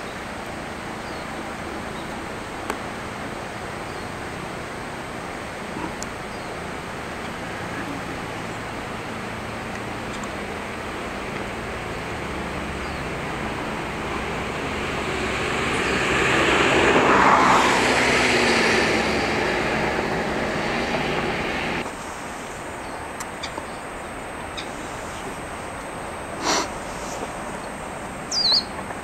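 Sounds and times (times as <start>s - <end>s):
motor vehicle passing: 6.7s - 21.9s.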